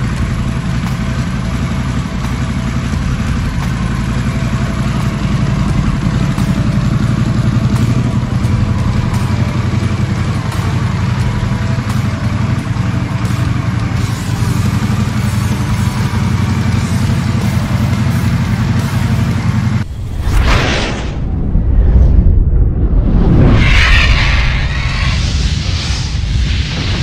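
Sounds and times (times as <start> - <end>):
motorcycle engine idling: 0.0 - 19.9.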